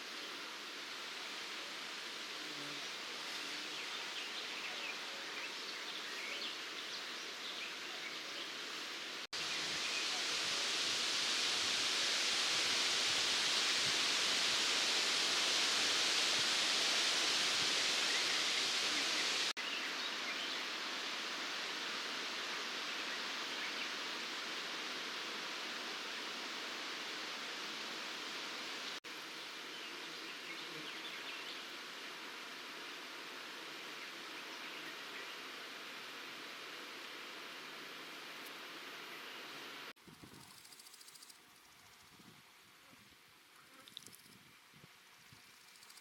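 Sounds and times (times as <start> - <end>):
steady high hiss: 0.0 - 46.0.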